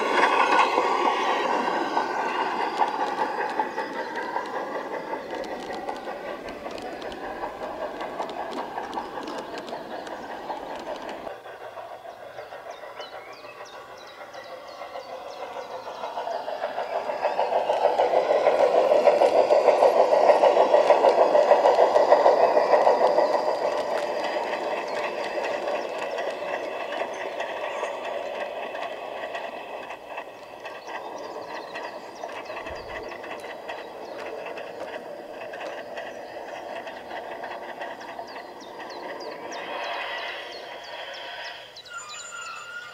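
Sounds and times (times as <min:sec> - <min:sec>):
model train wheels rumbling: 0:00.0 - 0:42.9.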